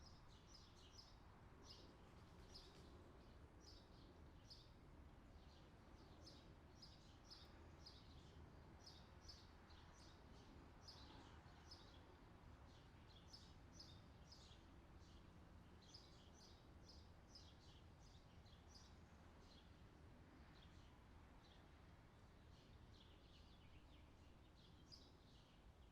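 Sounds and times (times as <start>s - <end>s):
songbirds chirping: 0.0s - 25.9s.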